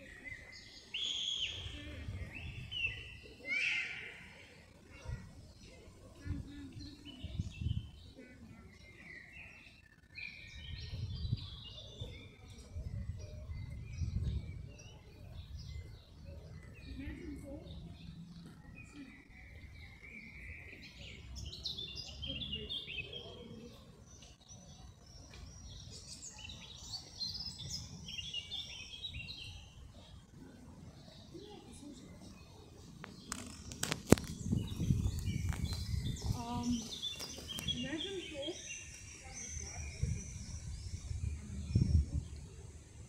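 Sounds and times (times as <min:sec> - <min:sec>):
small birds twittering: 0:00.0 - 0:43.0
songbirds chirping: 0:00.0 - 0:43.0.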